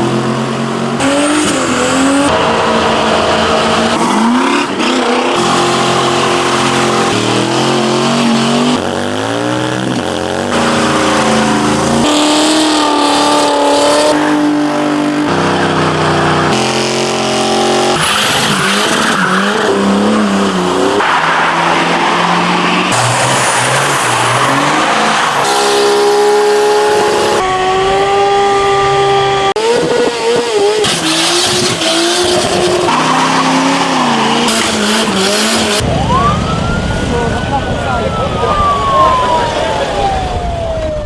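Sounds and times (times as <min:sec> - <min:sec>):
engines revving: 0:00.0 - 0:41.0
tyres squealing: 0:30.8 - 0:40.2.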